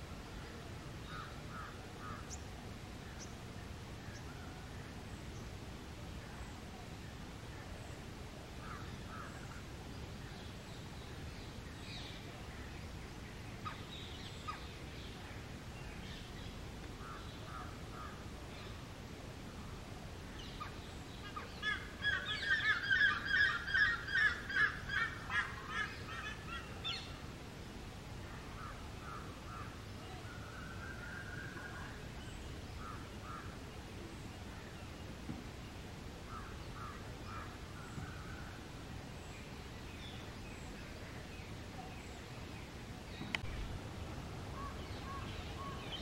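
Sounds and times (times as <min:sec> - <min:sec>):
faint bird chirps: 0:44.5 - 0:46.0.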